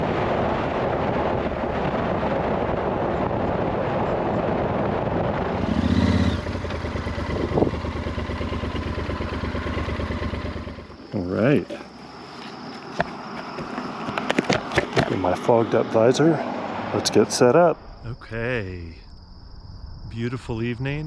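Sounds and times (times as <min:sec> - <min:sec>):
heavy wind noise: 0:00.0 - 0:10.0
motorcycle engine running: 0:05.4 - 0:12.0.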